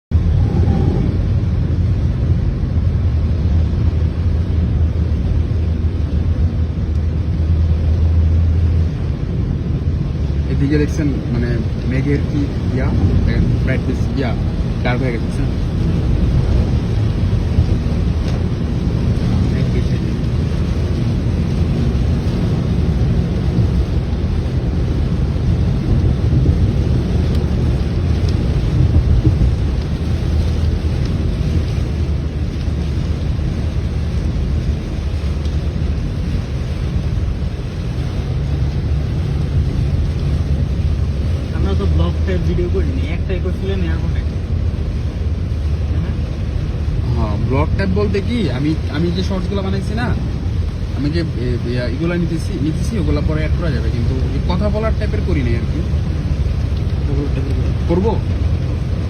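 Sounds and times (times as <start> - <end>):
wind buffeting microphone: 0.0 - 42.0
moving vehicle rumble: 0.0 - 59.0
rain: 0.0 - 59.0.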